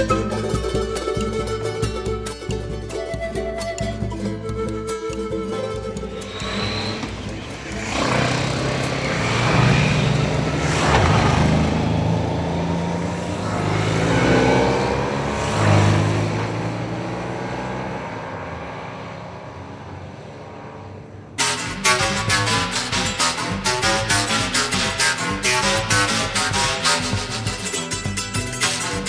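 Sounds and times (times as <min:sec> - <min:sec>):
music: 0:00.0 - 0:08.9, 0:21.4 - 0:29.0
motorcycles riding past: 0:06.3 - 0:22.0.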